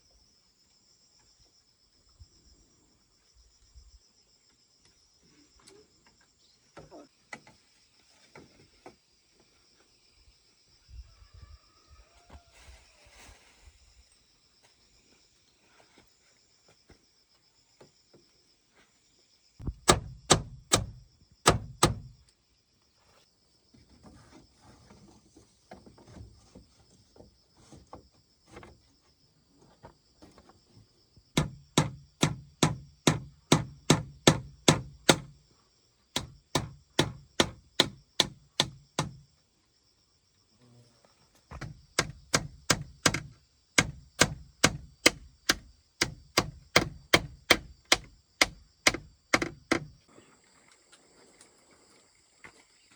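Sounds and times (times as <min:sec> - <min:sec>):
chopping blows on wood: 0:19.6 - 0:22.2, 0:31.4 - 0:35.3, 0:36.2 - 0:39.2, 0:41.6 - 0:49.9.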